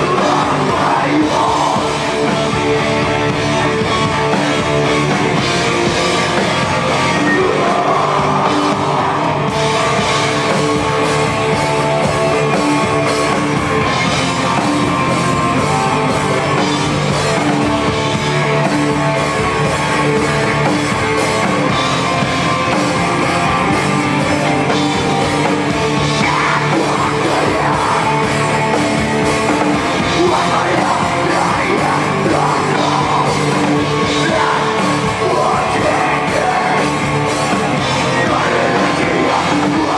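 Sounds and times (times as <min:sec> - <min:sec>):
person yelling singing: 0:00.0 - 0:02.4, 0:06.7 - 0:09.6, 0:25.9 - 0:28.6, 0:30.0 - 0:39.9
distorted electric guitars: 0:00.0 - 0:39.9
drums: 0:00.0 - 0:39.9.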